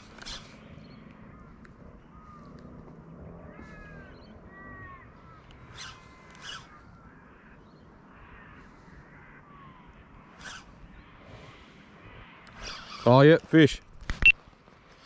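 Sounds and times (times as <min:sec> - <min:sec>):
bird calling: 0:00.0 - 0:13.4
sharp clicks: 0:13.8 - 0:14.4.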